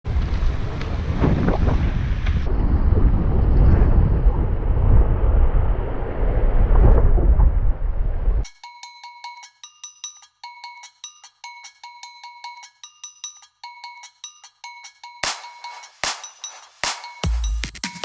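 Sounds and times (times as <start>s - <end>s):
wind buffeting microphone: 0.1s - 8.4s.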